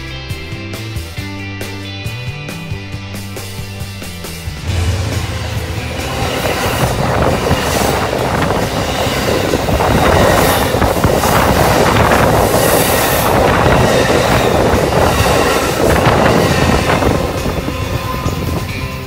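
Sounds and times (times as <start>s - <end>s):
train wheels rumbling on rail: 3.2s - 19.0s
clickety-clack of rail joints: 4.7s - 19.0s.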